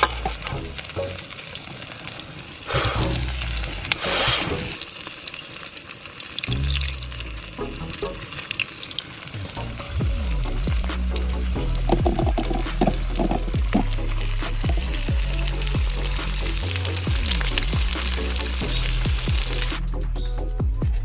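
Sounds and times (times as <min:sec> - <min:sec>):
background music with bass line: 0:00.0 - 0:01.2, 0:06.5 - 0:08.3, 0:09.4 - 0:21.0
tempura frying in hot oil: 0:00.0 - 0:19.7.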